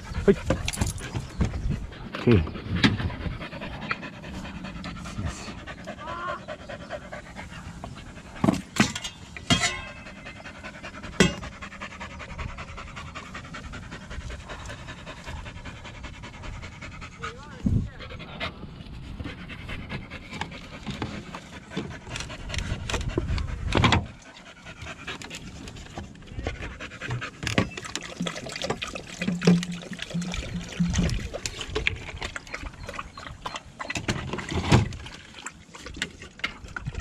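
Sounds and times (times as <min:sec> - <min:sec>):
wind rumbling on microphone: 0:00.0 - 0:08.4, 0:10.5 - 0:27.2, 0:30.2 - 0:33.5, 0:36.5 - 0:37.0
dog panting: 0:00.0 - 0:08.6, 0:09.9 - 0:28.0.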